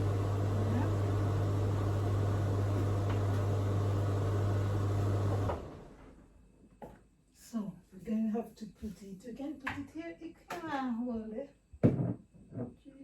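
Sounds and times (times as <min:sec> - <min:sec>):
kitchen appliance humming and winding down: 0:00.0 - 0:06.3.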